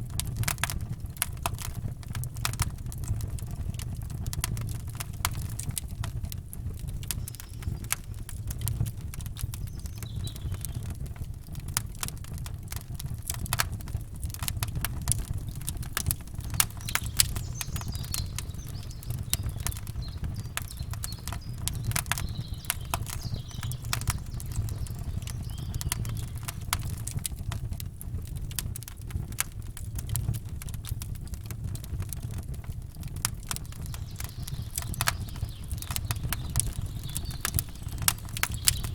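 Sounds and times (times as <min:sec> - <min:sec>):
campfire crackling and popping: 0:00.0 - 0:38.9
steady low rumble: 0:14.0 - 0:27.6
faint bird chirps: 0:16.4 - 0:26.6, 0:33.6 - 0:38.9.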